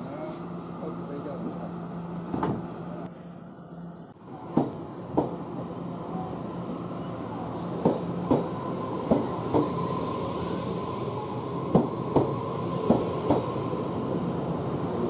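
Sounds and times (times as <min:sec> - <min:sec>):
train rumble: 0:04.3 - 0:15.0.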